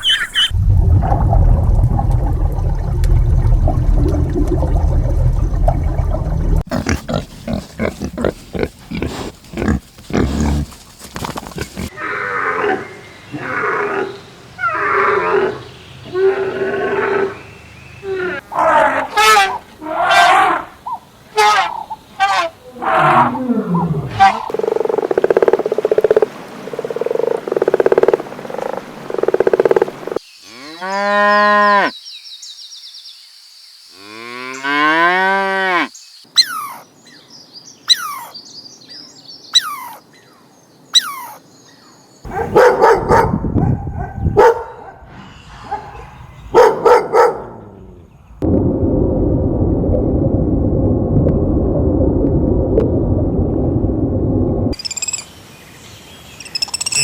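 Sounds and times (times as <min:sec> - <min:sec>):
rough noisy animal calls: 0:11.5 - 0:24.6.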